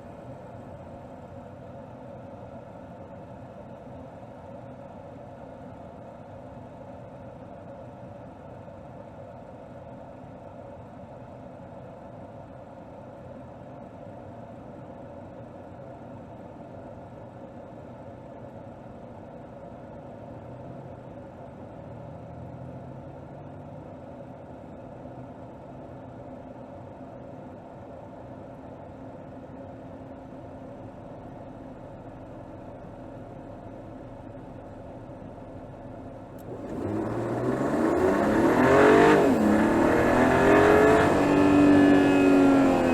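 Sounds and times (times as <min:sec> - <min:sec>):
car engine running and revving: 0:31.6 - 0:42.9.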